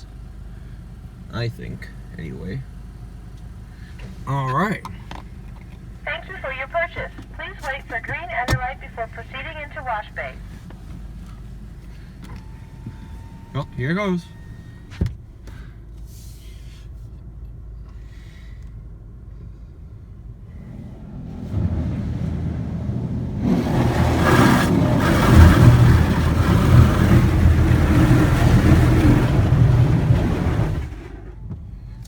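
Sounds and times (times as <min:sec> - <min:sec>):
car engine idling rumble: 0:00.0 - 0:32.0
car wash blasters spraying: 0:05.8 - 0:10.7, 0:20.4 - 0:31.4.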